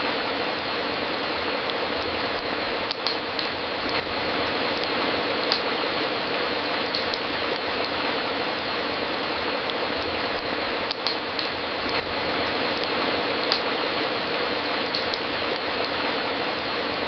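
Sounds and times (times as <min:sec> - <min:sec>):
fireplace crackling: 0:00.0 - 0:17.0
burning wood pops: 0:02.0 - 0:04.1, 0:04.8 - 0:05.8, 0:10.0 - 0:12.1, 0:12.8 - 0:13.8.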